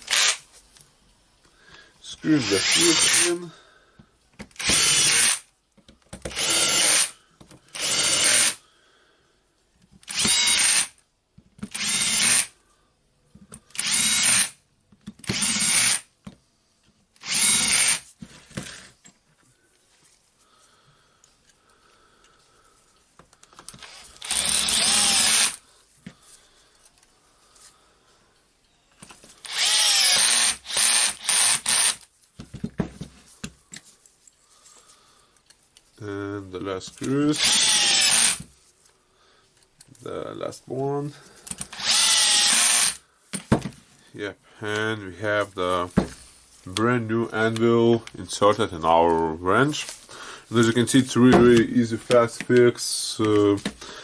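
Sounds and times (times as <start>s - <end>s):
power drill-driver running: 0.0s - 0.4s, 2.4s - 3.4s, 4.6s - 5.4s, 6.3s - 8.6s, 10.0s - 11.0s, 11.6s - 12.5s, 13.7s - 14.6s, 15.2s - 16.1s, 17.2s - 18.1s, 23.7s - 25.6s, 29.4s - 32.1s, 37.4s - 38.4s, 41.6s - 43.0s.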